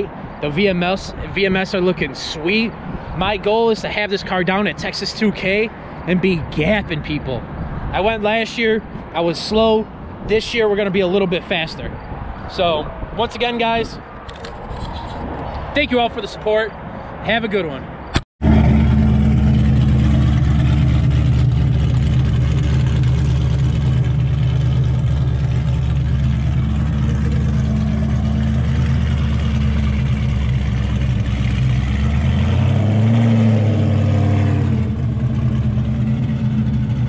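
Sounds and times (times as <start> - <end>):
car engine running at low revs: 18.4 - 37.0.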